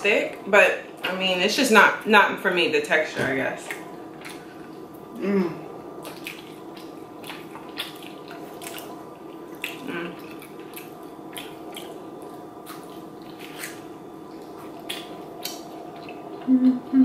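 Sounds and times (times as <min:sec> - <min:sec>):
chewing with lip smacks: 0:03.6 - 0:05.0, 0:06.0 - 0:16.9
person humming mm-hmm: 0:05.1 - 0:05.7, 0:09.8 - 0:10.2, 0:16.4 - 0:17.0.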